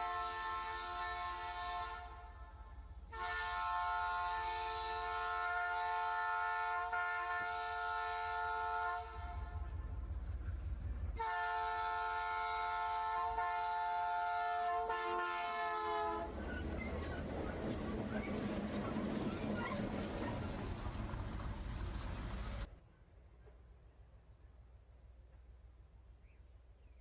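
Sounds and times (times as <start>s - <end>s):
locomotive air horn blasts: 0.0s - 9.8s, 11.2s - 16.3s.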